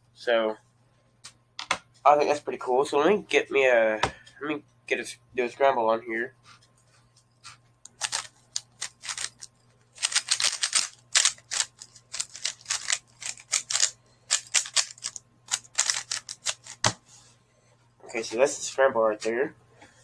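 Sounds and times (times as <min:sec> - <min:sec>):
plastic puzzle cube clicking: 0:07.9 - 0:16.8.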